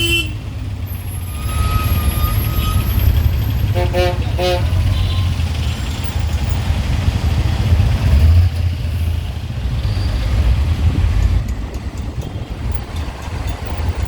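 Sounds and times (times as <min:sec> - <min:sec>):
city road traffic: 0:00.0 - 0:14.0
heavy low rumble: 0:05.7 - 0:14.0.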